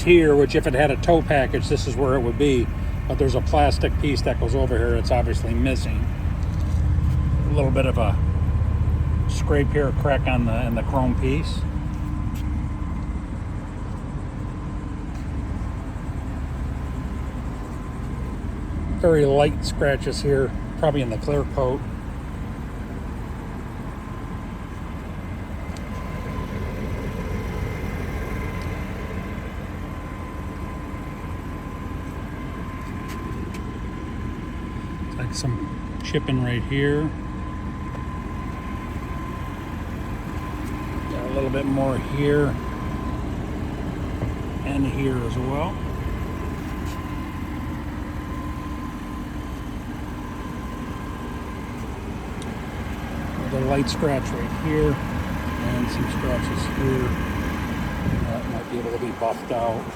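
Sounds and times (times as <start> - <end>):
engine idling: 0.0 - 59.9
low-pitched rumbling: 37.4 - 59.9.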